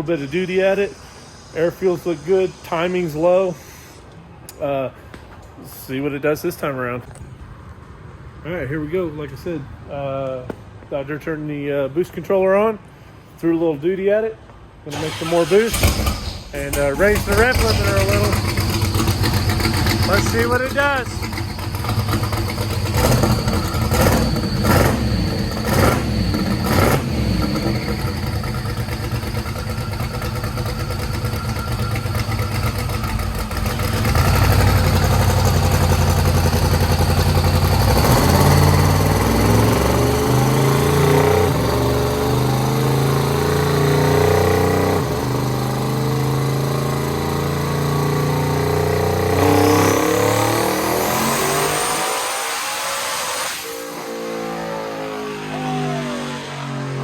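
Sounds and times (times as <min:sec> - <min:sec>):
engine cracks: 0:14.9 - 0:35.7
engine revving under load: 0:14.9 - 0:57.0
car engine idling roughly: 0:16.6 - 0:37.8.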